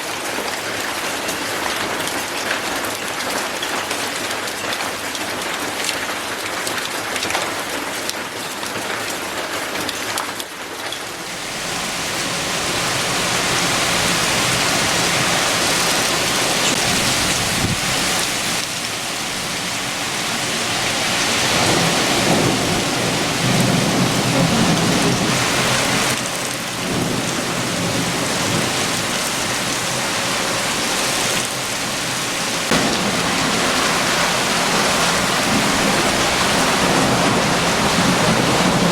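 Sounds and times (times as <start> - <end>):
heavy rain: 0.0 - 38.9
thunder rumbling: 11.4 - 38.9.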